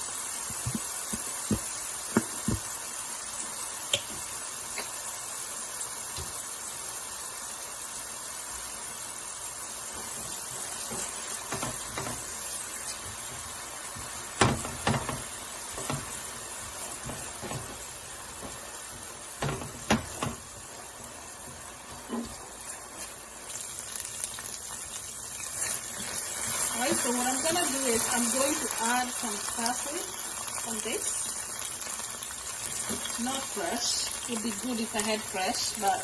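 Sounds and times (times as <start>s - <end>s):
food sizzling in a pan: 0.0s - 36.0s
utensil knocking against pan: 14.4s - 16.2s, 18.4s - 20.5s.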